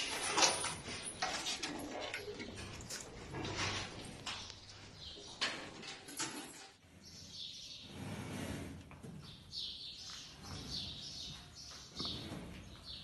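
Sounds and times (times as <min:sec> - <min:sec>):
small birds chirping: 0:06.8 - 0:08.2, 0:09.2 - 0:13.0.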